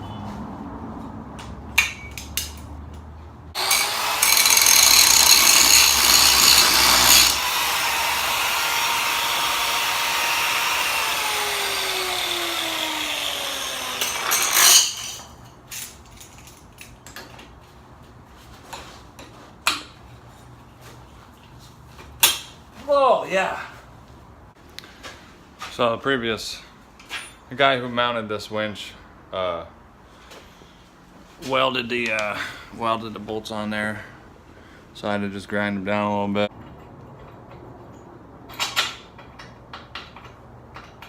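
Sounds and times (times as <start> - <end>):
power grinder grinding metal: 3.6 - 15.2.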